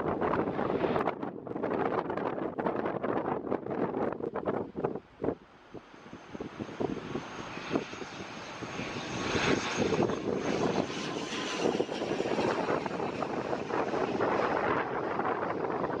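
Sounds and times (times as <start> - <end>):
turboprop engines rumbling: 0.0 - 16.0
wind buffeting microphone: 0.0 - 16.0.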